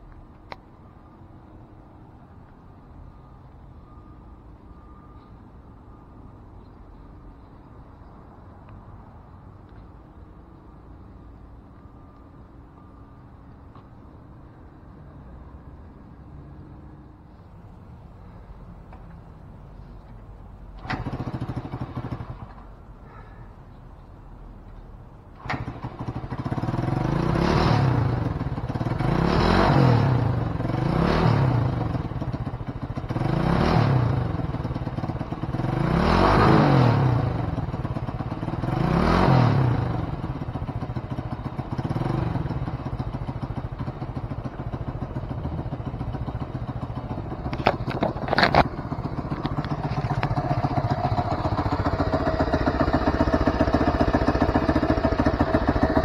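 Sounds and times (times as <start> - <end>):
motorcycle engine revving and idling: 20.8 - 23.3, 25.4 - 56.0.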